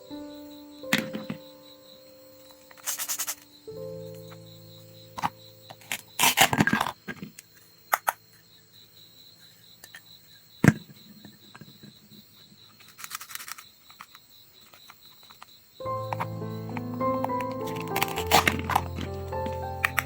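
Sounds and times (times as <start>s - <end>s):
brief crackle: 12.8s - 15.0s
rasping tear: 16.0s - 20.0s.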